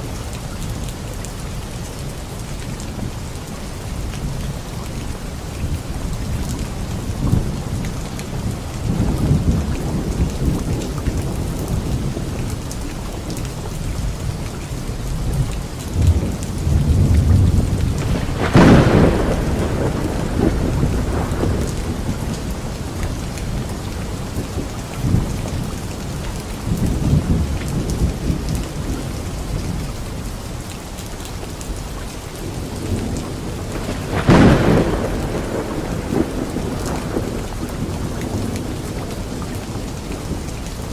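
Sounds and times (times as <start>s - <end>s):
steady rain falling: 0.0s - 40.9s
rolling thunder: 6.0s - 12.6s, 15.2s - 29.8s, 32.4s - 40.9s
sharp thunderclaps: 16.0s - 25.7s, 32.5s - 40.5s.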